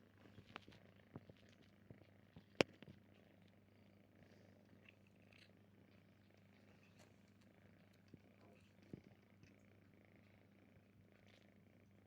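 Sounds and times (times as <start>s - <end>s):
cat purring: 0.2s - 12.0s.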